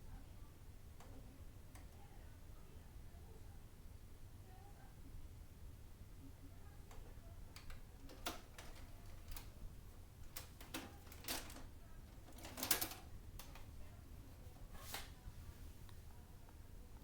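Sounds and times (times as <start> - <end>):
low steady hum: 0.0 - 17.0
faint clicks and crackles: 6.8 - 13.8.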